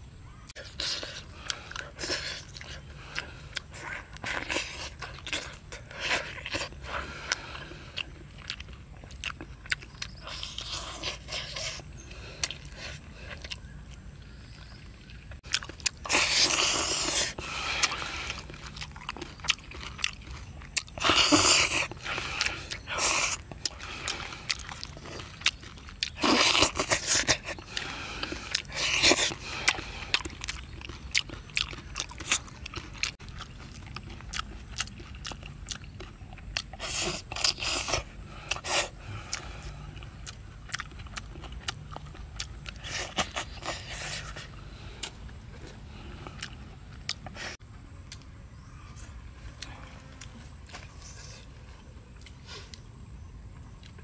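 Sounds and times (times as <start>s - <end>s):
man chewing: 0.4s - 48.4s, 49.0s - 54.0s.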